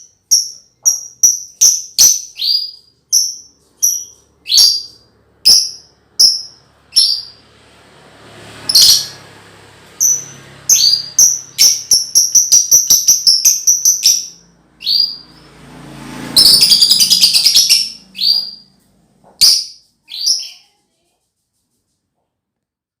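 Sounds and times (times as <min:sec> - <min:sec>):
lovebird chirping and chattering: 0:00.0 - 0:07.4, 0:08.7 - 0:09.2, 0:10.0 - 0:15.5, 0:16.3 - 0:18.7, 0:19.4 - 0:20.8.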